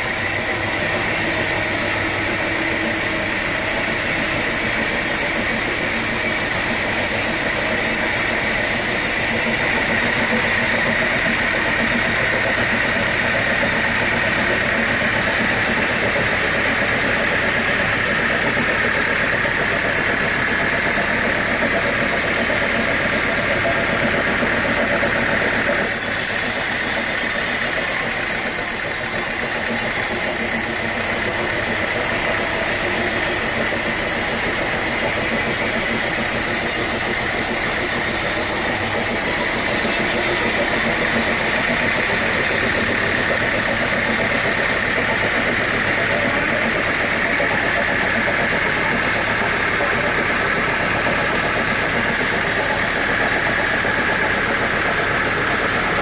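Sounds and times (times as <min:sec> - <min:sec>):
hiss: 0:00.0 - 0:56.0
sawmill saw whining: 0:00.0 - 0:56.0.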